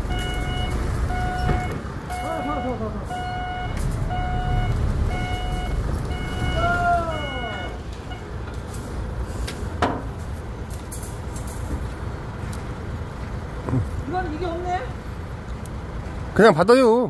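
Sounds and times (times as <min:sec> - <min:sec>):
vehicle reversing alarm beeping: 0:00.0 - 0:08.4
low engine rumble: 0:00.0 - 0:17.0.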